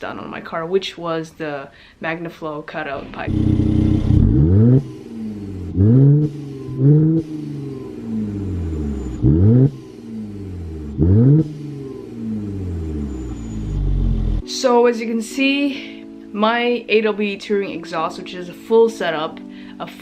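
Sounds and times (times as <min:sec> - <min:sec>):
car engine revving: 0:03.2 - 0:14.4.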